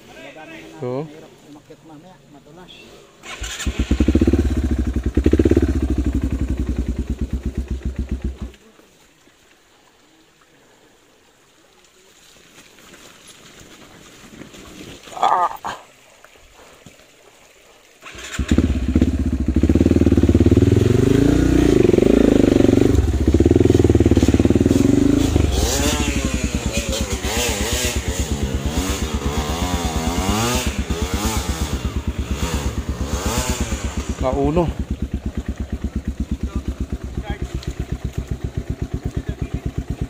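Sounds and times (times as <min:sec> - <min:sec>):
dirt bike engine revving: 0:03.2 - 0:08.5, 0:18.0 - 0:40.0.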